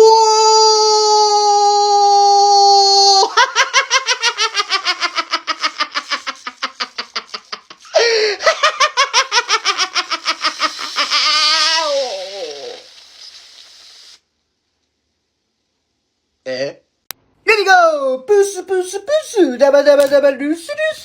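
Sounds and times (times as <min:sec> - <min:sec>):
rapid pulsed laughter: 0:03.3 - 0:11.6.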